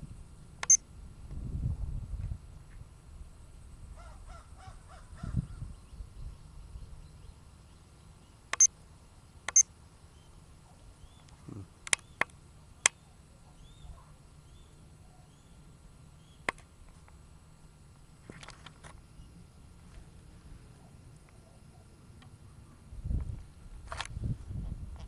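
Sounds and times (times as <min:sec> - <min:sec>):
sharp clicks: 0:00.6 - 0:00.8, 0:08.5 - 0:08.8, 0:09.4 - 0:09.7, 0:11.2 - 0:13.0, 0:16.4 - 0:17.2.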